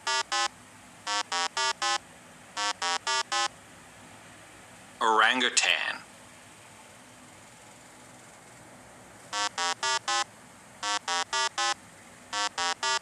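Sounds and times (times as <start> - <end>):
electronic buzzing beeps: 0.0 - 2.0, 2.6 - 3.5, 9.3 - 13.0.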